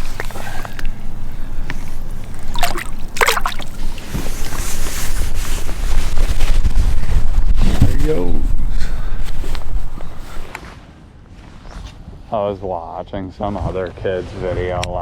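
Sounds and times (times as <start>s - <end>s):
steady low rumble: 0.0s - 10.5s
water splashing: 1.8s - 4.9s.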